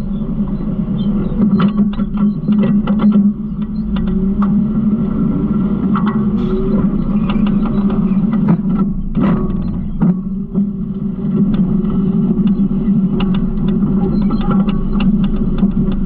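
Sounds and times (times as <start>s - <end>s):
garbage truck engine running: 0.0s - 16.0s.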